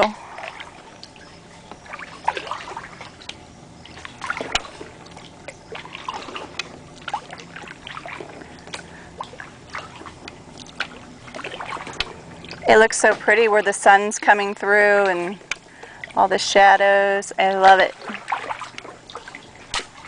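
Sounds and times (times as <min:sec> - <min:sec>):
small paddle splashes: 0:00.0 - 0:16.2, 0:17.5 - 0:20.0
water dripping off paddle: 0:00.3 - 0:16.5, 0:17.5 - 0:20.0.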